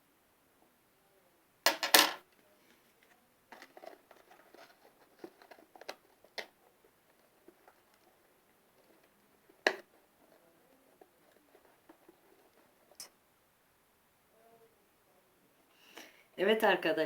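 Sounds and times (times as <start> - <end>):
small objects tapping and clicking: 9.6 - 9.9.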